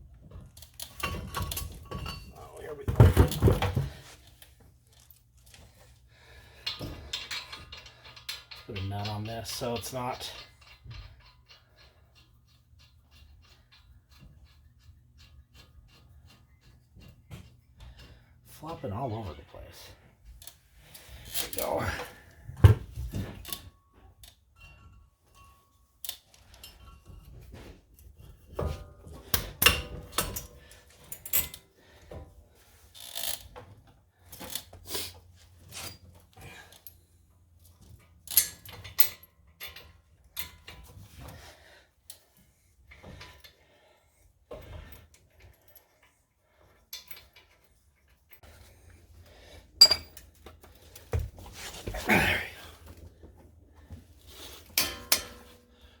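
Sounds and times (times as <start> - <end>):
metal tools clinking: 0.6 - 3.5, 49.8 - 50.4, 54.4 - 55.8.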